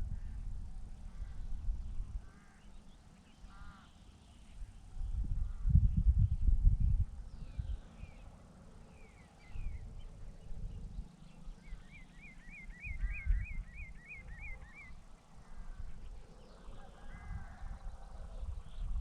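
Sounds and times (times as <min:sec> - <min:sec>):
wind buffeting microphone: 0:00.0 - 0:02.4, 0:04.6 - 0:08.3, 0:09.0 - 0:19.0
birds whistling: 0:10.8 - 0:15.0.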